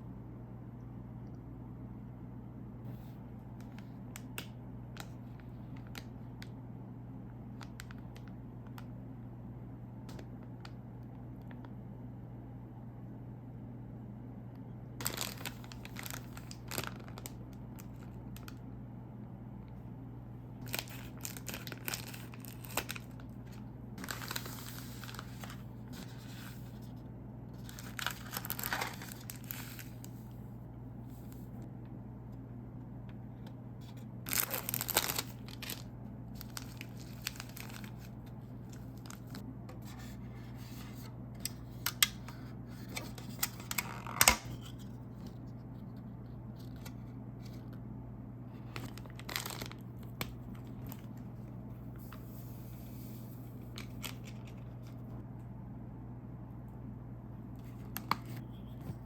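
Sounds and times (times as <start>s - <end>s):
plastic packaging tearing and crinkling: 15.0s - 18.5s, 20.6s - 26.6s, 27.6s - 30.2s, 34.3s - 39.4s, 43.0s - 44.9s, 48.8s - 51.2s, 53.8s - 55.0s.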